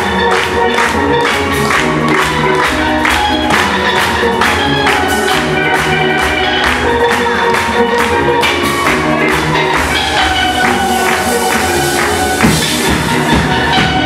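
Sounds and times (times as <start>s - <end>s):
steel drum band playing: 0.0s - 14.0s.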